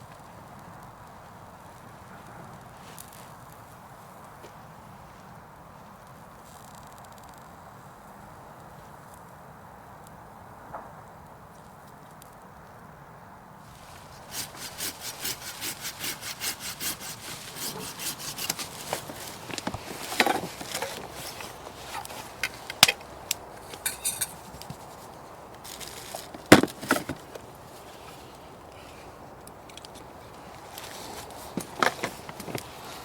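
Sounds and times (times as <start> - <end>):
hand saw cutting wood: 13.7 - 23.0, 23.6 - 24.8, 25.7 - 27.4
wood cracking: 13.7 - 27.6.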